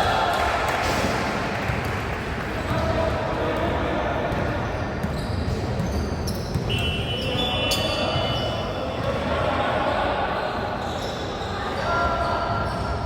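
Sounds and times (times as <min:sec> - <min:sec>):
echoing crowd voices: 0:00.0 - 0:05.8, 0:06.6 - 0:13.0
shoe squeak: 0:04.6 - 0:08.9, 0:10.4 - 0:13.0.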